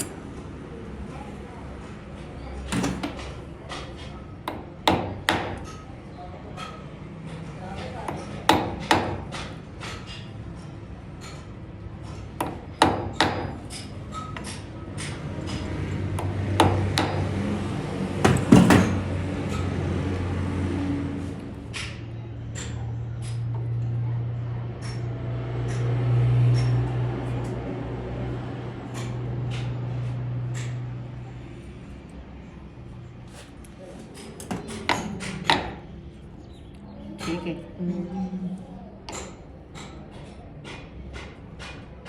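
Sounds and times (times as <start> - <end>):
metal knocks and clatters: 2.7 - 3.9, 18.2 - 19.6
low machine hum: 10.4 - 40.5.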